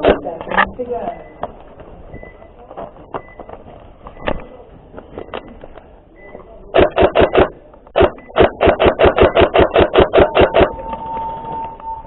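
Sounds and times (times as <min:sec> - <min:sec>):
airsoft gun shots: 0:00.0 - 0:00.3, 0:06.7 - 0:10.8.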